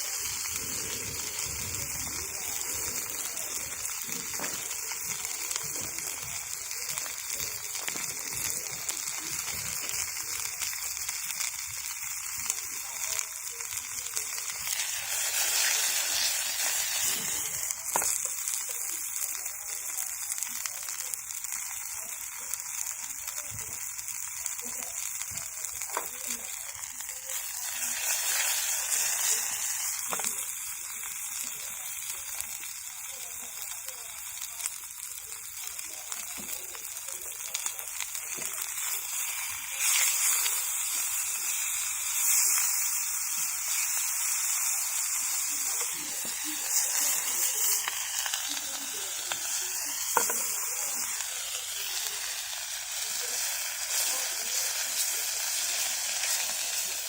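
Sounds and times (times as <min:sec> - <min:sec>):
food sizzling in hot oil: 0:00.0 - 0:57.0.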